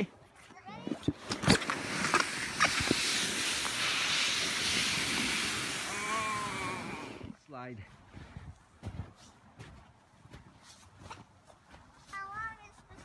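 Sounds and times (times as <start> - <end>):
sled sliding over snow: 0.6 - 7.3
child calling out: 5.9 - 7.0.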